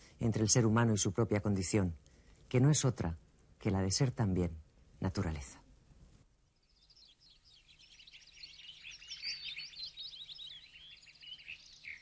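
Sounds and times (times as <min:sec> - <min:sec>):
birds chirping and trilling: 0:06.5 - 0:12.0.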